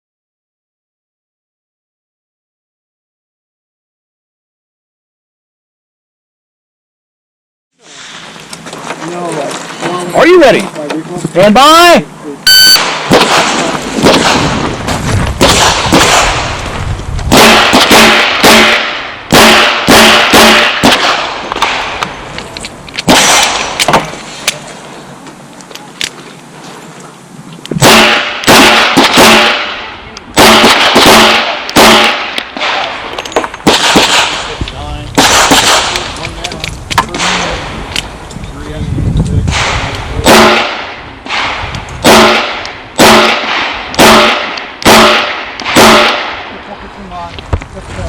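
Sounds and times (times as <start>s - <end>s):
revolver gunshots: 12.5s - 16.6s, 17.3s - 22.0s, 23.0s - 24.1s, 27.8s - 34.6s, 35.2s - 36.2s, 39.5s - 46.6s.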